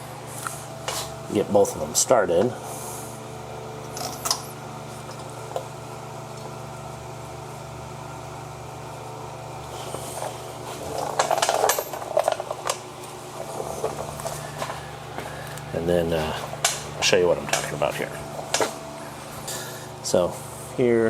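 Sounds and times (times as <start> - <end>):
steady low hum: 0.0 - 21.0
metal tools clinking and rattling: 3.9 - 4.5, 10.9 - 12.8.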